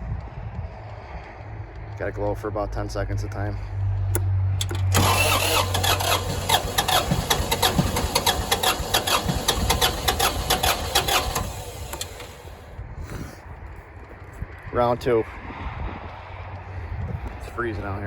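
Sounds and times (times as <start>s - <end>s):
diesel engine cranking: 4.1s - 12.7s.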